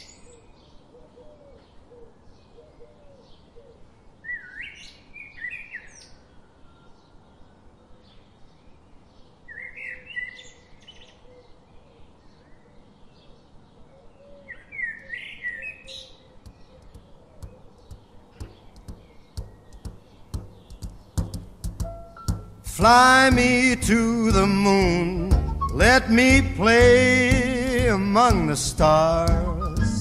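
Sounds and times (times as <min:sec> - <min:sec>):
songbird chirping: 0:00.0 - 0:30.0
faint outdoor hush: 0:16.1 - 0:30.0.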